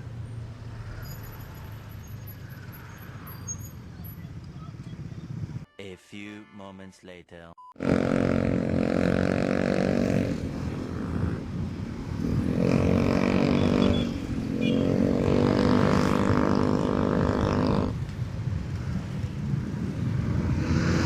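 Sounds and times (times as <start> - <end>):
motorcycle engine under throttle: 7.8 - 11.4, 12.2 - 18.0.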